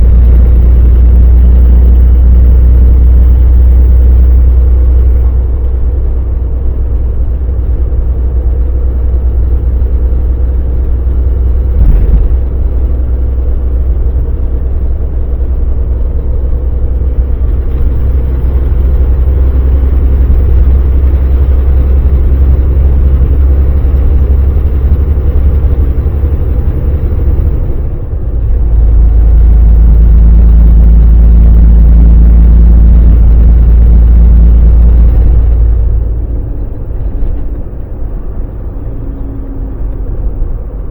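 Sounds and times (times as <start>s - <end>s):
faint hum: 0.0s - 40.9s
road noise: 0.0s - 40.9s
truck diesel engine drone: 0.0s - 40.9s
thump: 11.8s - 12.4s.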